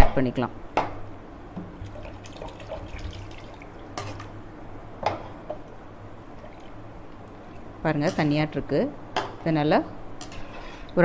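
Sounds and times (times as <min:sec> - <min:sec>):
water pouring into curry: 0:01.9 - 0:03.7.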